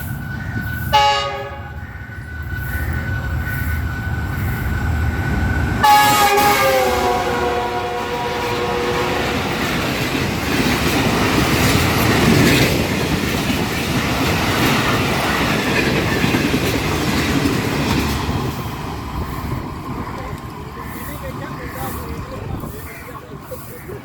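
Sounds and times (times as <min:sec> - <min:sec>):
train cars rushing over rails: 0:00.0 - 0:24.0
multi-tone train horn: 0:00.8 - 0:03.6, 0:05.8 - 0:09.9.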